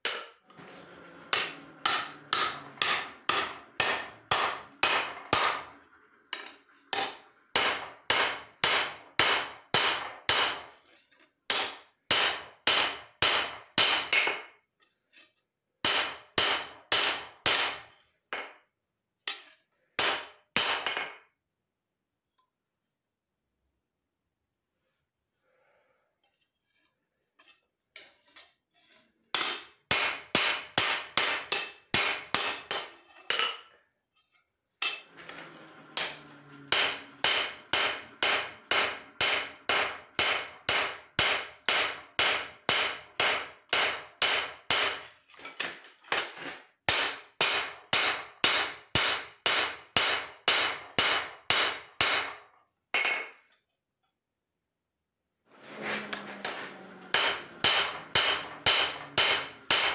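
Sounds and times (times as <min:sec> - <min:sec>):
hammer striking steel on anvil: 0:01.4 - 0:05.8, 0:06.4 - 0:10.7, 0:11.5 - 0:14.5, 0:15.8 - 0:17.9, 0:20.0 - 0:21.1, 0:29.4 - 0:33.0, 0:36.0 - 0:45.1, 0:46.9 - 0:52.4, 0:55.8 - 0:59.9.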